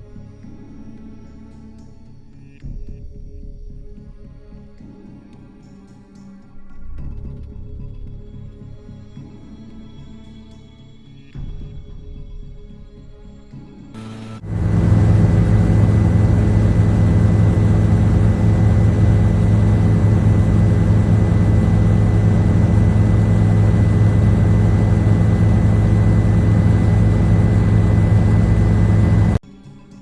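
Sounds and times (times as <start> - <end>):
faint high whine: 14.4 - 29.4
loud steady engine drone: 14.4 - 29.4.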